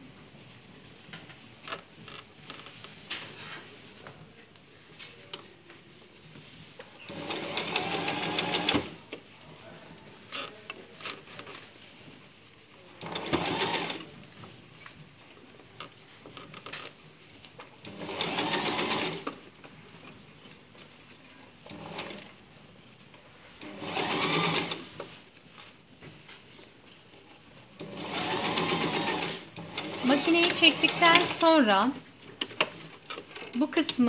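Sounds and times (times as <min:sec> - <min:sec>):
sewing machine stitching: 0:07.0 - 0:09.0, 0:13.0 - 0:14.1, 0:17.8 - 0:19.4, 0:21.6 - 0:22.3, 0:23.6 - 0:25.0, 0:27.8 - 0:31.7.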